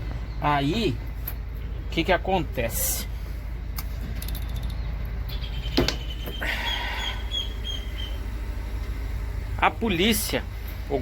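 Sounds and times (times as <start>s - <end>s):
low outdoor rumble: 0.0s - 11.0s
bird chirping short high calls: 4.8s - 8.2s.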